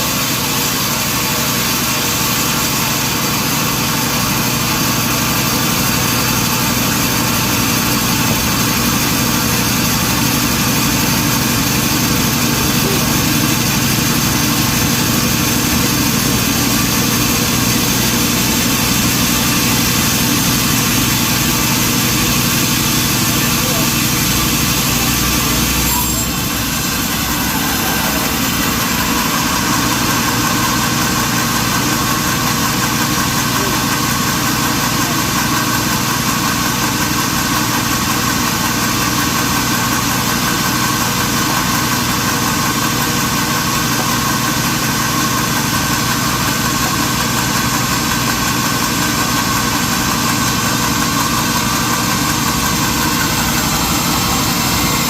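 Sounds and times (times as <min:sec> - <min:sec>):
sawmill machinery drone: 0:00.0 - 0:55.0.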